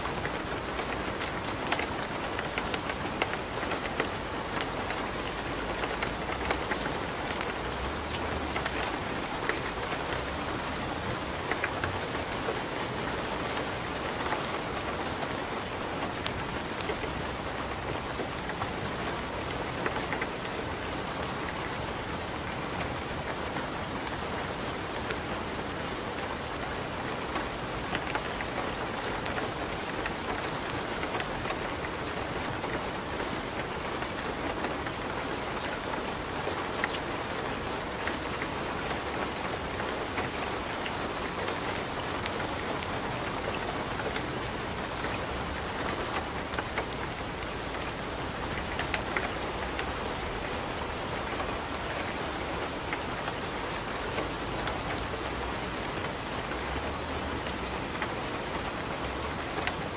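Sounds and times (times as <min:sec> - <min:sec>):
wood fire crackling: 0:37.9 - 0:59.9.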